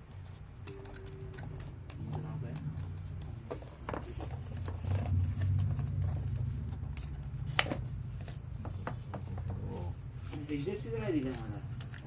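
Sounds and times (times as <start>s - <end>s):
low hum: 4.4s - 10.2s.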